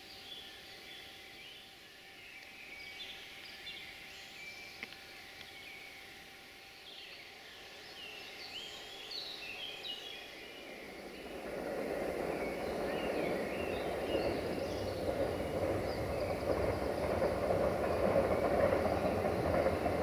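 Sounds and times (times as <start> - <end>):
approaching train rumble: 5.9 - 20.0
birds chirping and whistling: 7.8 - 20.0.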